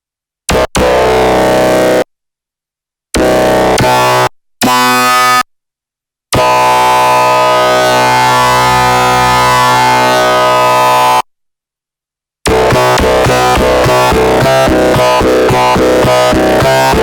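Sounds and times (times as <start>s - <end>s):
synthesizer bass notes: 3.2s - 5.4s, 12.5s - 17.0s.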